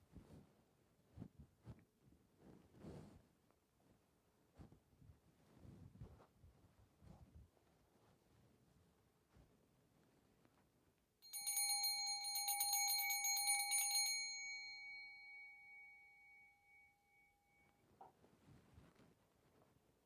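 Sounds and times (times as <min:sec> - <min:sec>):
hand bell ringing: 0:11.2 - 0:17.8.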